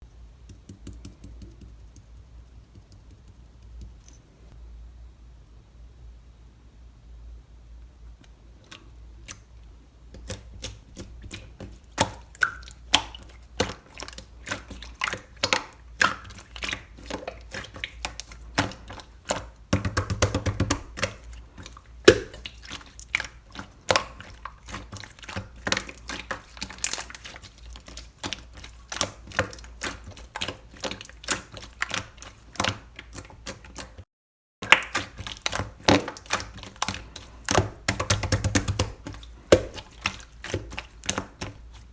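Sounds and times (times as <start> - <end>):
slime clicking and popping: 22.0 - 22.6, 34.6 - 41.5.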